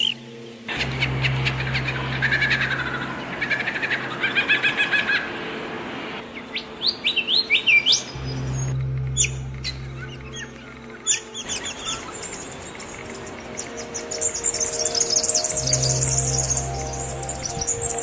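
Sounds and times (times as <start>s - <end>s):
steady low hum: 0.2s - 4.2s, 8.0s - 18.0s
songbirds chirping and singing: 6.2s - 18.0s.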